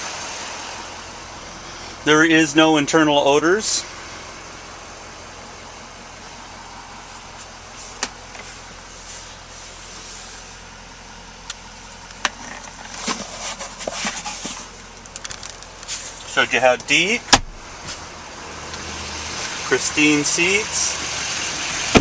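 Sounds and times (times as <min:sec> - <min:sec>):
diesel engine idling: 0:00.0 - 0:22.0
handling and rustling: 0:12.1 - 0:16.4.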